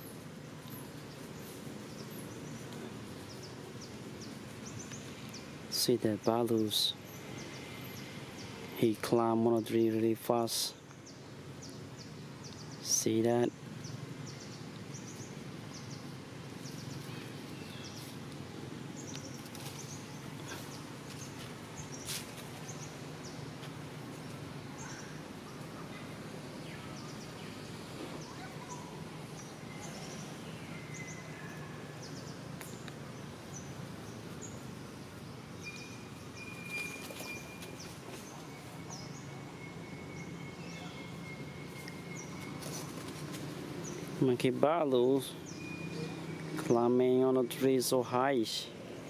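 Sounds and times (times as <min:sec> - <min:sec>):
steady low background noise: 0:00.0 - 0:49.0
bird chirps: 0:24.2 - 0:43.1, 0:43.8 - 0:47.4.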